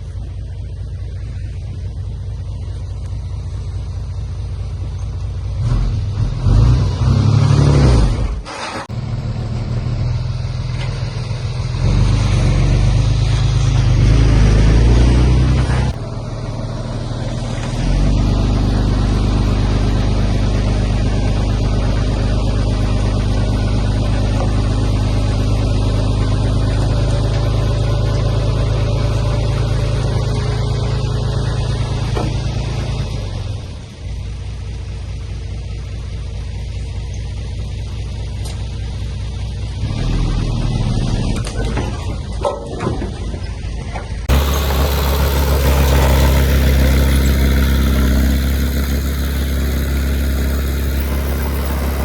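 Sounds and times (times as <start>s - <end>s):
heavy diesel engine revving: 5.6s - 33.8s, 44.2s - 52.0s.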